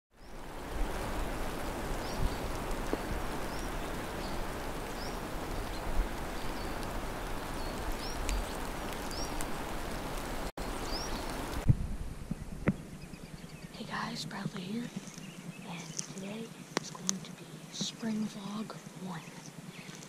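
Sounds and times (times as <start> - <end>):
outdoor background hiss: 0.2 - 20.0
bird chirping: 3.4 - 9.4, 10.6 - 11.4, 12.2 - 20.0.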